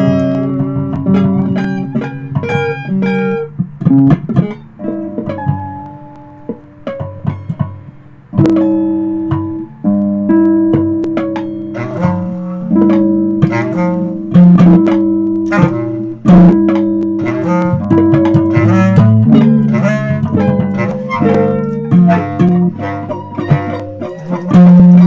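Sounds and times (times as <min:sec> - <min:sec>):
plucked guitar notes: 0:00.0 - 0:25.0
bass: 0:08.3 - 0:25.0.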